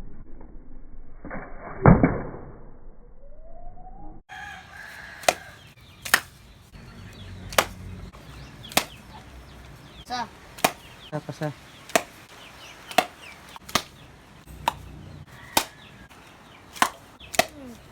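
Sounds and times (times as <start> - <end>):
rooster crowing: 4.3 - 5.8, 15.3 - 16.2
blade chopping bamboo: 5.2 - 6.4, 7.5 - 7.9, 8.6 - 9.1, 10.6 - 10.9, 11.9 - 16.0, 16.7 - 17.9.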